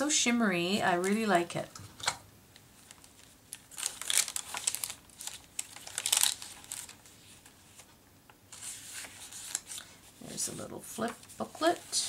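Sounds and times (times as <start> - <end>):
paper pages rustling and crinkling: 2.8 - 12.0.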